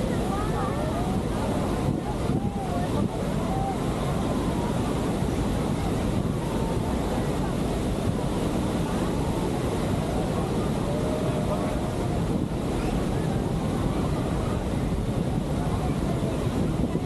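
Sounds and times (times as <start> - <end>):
faint voices: 0.0 - 17.0
water rushing: 0.0 - 17.0
wind buffeting microphone: 0.0 - 17.0.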